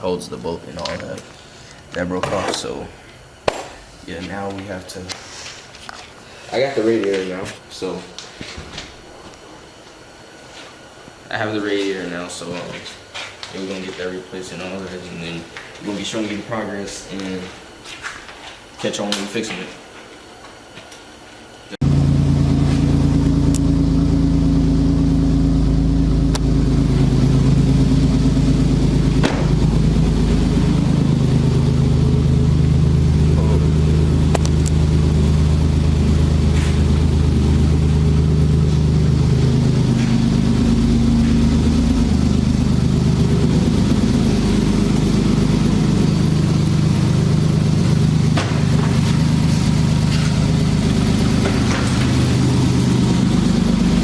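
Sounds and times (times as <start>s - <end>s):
truck engine idling: 21.8s - 54.0s.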